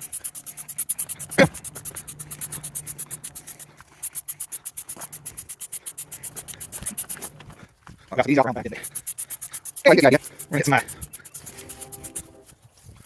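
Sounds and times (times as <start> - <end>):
pulsing spray hiss: 0.0 - 7.4, 8.6 - 12.4
low hum: 0.0 - 7.6.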